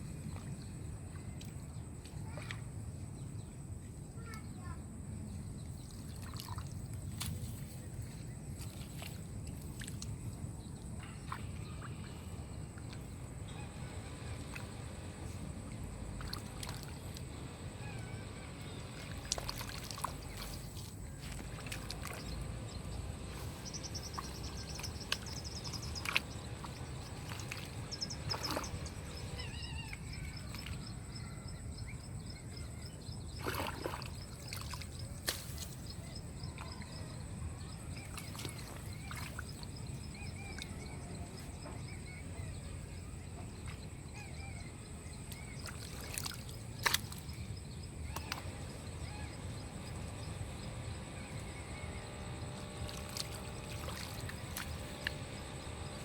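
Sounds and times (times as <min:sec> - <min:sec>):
splashes and knocks: 0:05.9 - 0:07.7, 0:16.2 - 0:17.2, 0:18.9 - 0:22.8, 0:23.5 - 0:29.2, 0:33.4 - 0:35.9, 0:45.3 - 0:47.4, 0:52.6 - 0:55.2
high bird chirps and trills: 0:17.4 - 0:56.0
water rushing: 0:18.8 - 0:31.0, 0:52.3 - 0:56.0.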